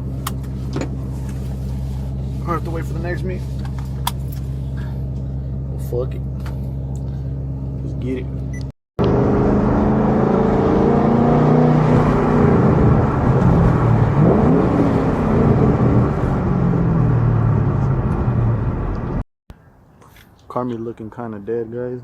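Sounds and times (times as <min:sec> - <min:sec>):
loud car exhaust: 0:09.0 - 0:18.8.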